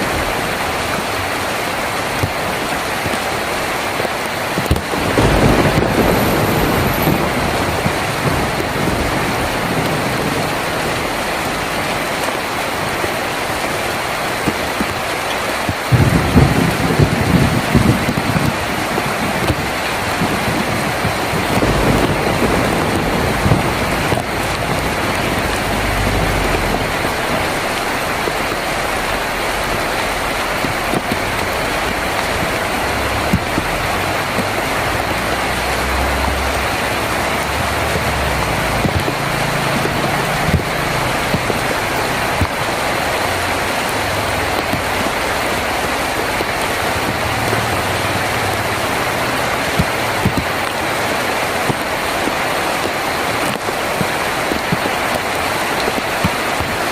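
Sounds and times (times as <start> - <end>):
heavy rain on a tin roof: 0.0 - 56.9.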